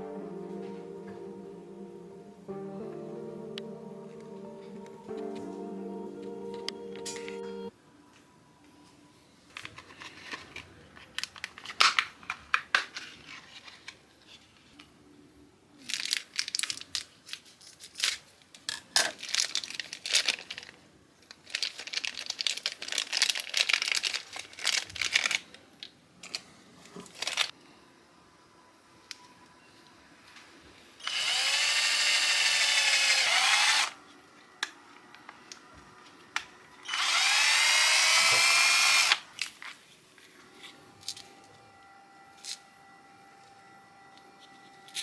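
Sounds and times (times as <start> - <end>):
crinkly packaging rustling: 15.8 - 27.5.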